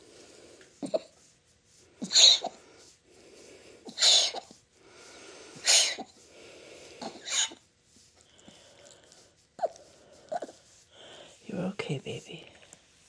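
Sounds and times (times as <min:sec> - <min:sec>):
small dog coughing: 0:00.8 - 0:01.1, 0:02.0 - 0:02.6, 0:03.9 - 0:04.6, 0:05.6 - 0:06.2, 0:07.0 - 0:07.6
dog wheezy breathing in: 0:01.8 - 0:11.4.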